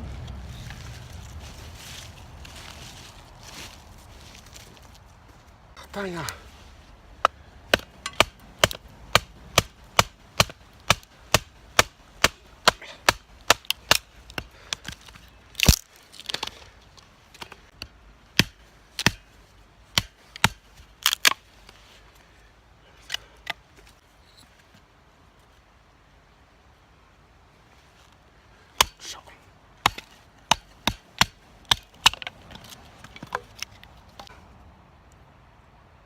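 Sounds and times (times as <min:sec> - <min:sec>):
flint striking fire steel: 0:07.2 - 0:16.6, 0:17.4 - 0:19.3, 0:19.9 - 0:21.4, 0:29.8 - 0:34.3.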